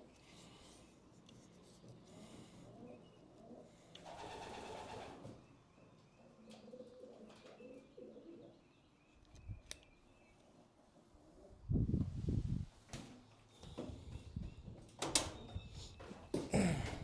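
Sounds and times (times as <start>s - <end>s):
pigeons cooing faintly: 0.0s - 9.2s.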